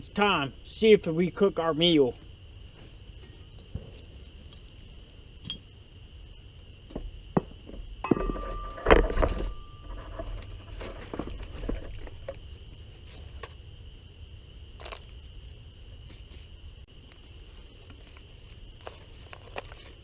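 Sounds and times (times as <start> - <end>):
insect chirring: 0.0 - 20.0
knocks and metallic clatter: 6.9 - 12.4
ringing metal tone: 8.0 - 10.8.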